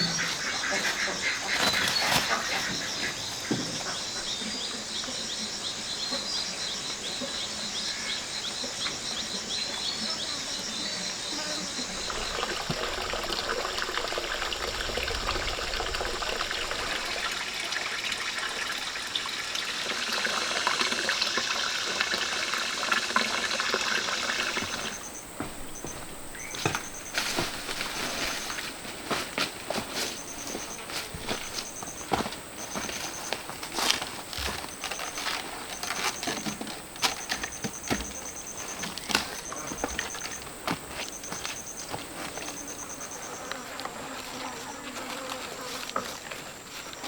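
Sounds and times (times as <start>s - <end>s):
water pouring and trickling: 11.9s - 28.8s.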